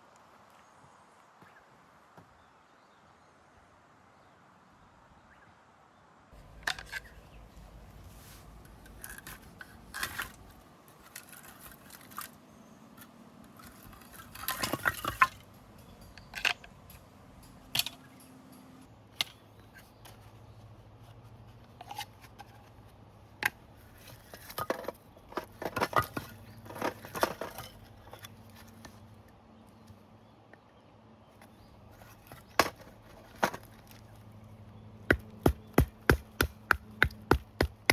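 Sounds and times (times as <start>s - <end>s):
camping gear clinking and knocking: 6.4s - 20.4s, 21.6s - 29.0s, 31.4s - 37.9s.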